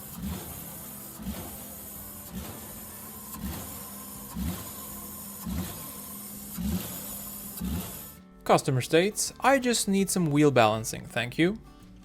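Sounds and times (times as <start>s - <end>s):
car engine running: 0.0s - 8.3s.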